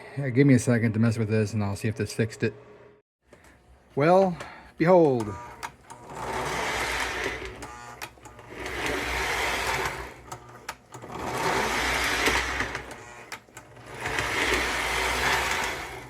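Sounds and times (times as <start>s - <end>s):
toy train motor and gears running: 5.2s - 16.0s.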